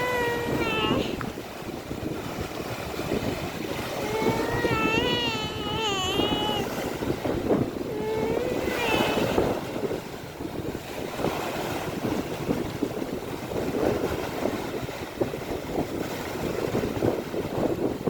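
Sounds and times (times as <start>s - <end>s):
wavering drawn-out cry: 0.0s - 1.2s, 3.9s - 6.7s, 7.9s - 9.4s
rough sea water: 0.0s - 18.0s
wind buffeting microphone: 0.0s - 18.0s.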